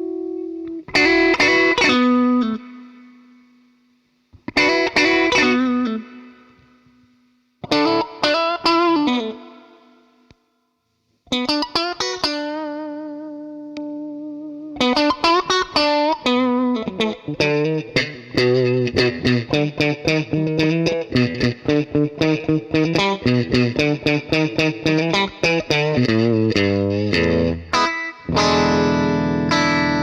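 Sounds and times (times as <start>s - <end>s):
overdriven electric guitar notes: 0.0s - 3.8s, 4.4s - 10.1s, 11.3s - 30.0s.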